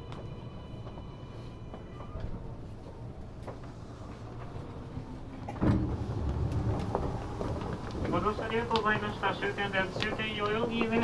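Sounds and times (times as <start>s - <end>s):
subway car equipment hum: 0.0s - 11.0s
sliding doors opening: 3.6s - 11.0s.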